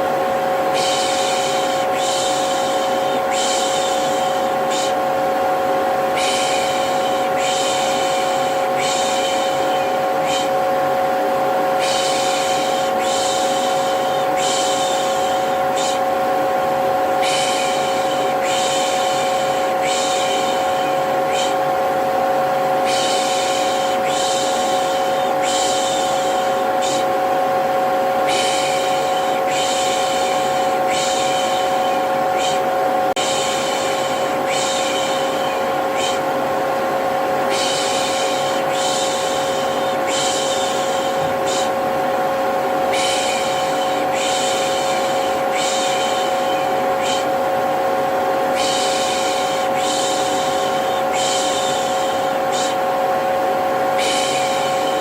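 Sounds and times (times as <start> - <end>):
vacuum cleaner humming: 0.0 - 55.0
shushing hiss: 0.7 - 5.0, 6.1 - 10.6, 11.6 - 16.2, 17.1 - 22.2, 22.8 - 27.2, 37.5 - 47.4, 48.0 - 52.8.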